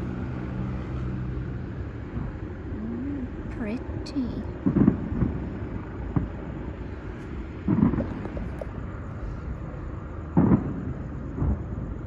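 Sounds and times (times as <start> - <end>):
low background rumble: 0.0 - 12.0
distant fireworks booms: 4.5 - 12.0.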